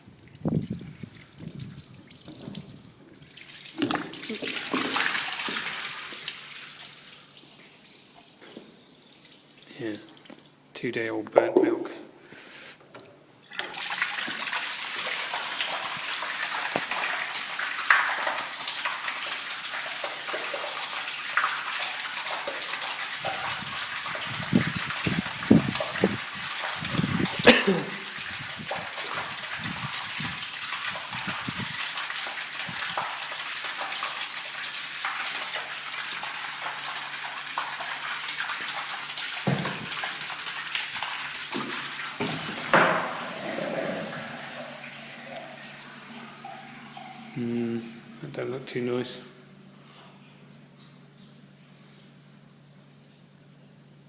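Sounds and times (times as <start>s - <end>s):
water gushing into a tank: 0.0s - 10.7s, 13.5s - 49.0s.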